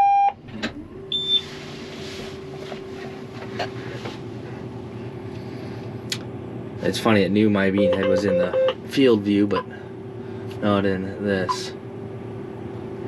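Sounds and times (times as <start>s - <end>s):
machine hum with low tone: 0.0s - 13.0s
short high beep: 7.8s - 8.8s.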